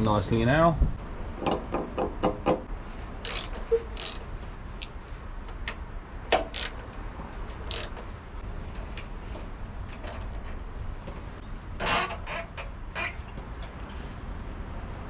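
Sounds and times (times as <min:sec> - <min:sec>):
metallic clicks of hand tools: 0:03.2 - 0:04.2, 0:07.7 - 0:08.0.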